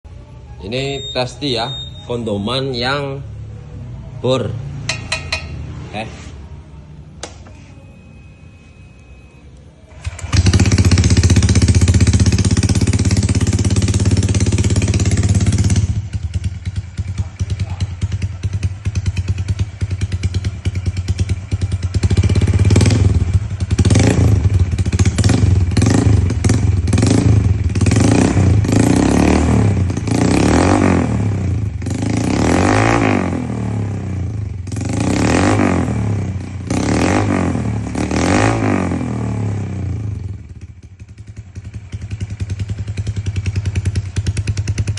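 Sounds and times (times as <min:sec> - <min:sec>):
motorcycle engine revving: 0:09.9 - 0:44.9.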